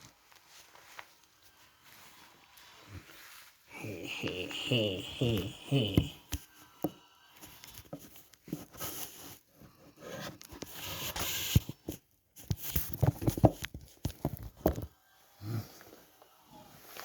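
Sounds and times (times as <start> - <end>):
rustling and rubbing: 0.0 - 4.5, 7.4 - 15.0.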